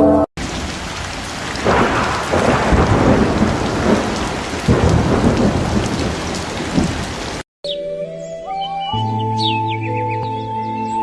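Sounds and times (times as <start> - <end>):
thunder rumble: 0.4 - 7.4
rain falling: 0.4 - 7.5.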